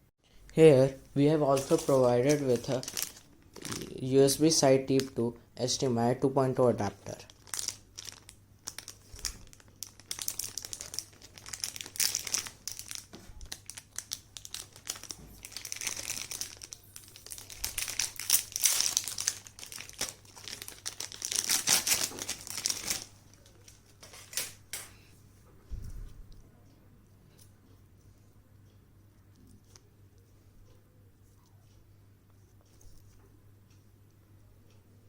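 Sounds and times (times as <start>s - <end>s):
crinkly packaging unwrapped: 1.2s - 4.2s, 7.0s - 24.6s.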